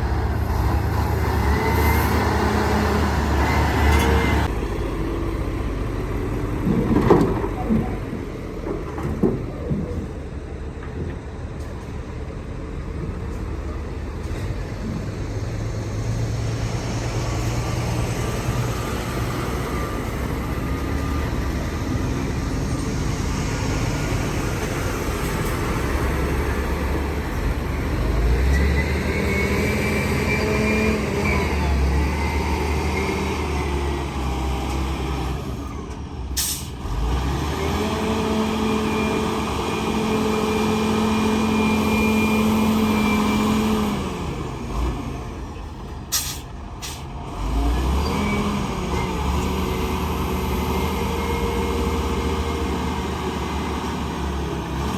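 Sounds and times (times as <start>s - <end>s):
heavy diesel engines revving: 0.0s - 54.9s
sharp hiss of air: 46.1s - 47.1s.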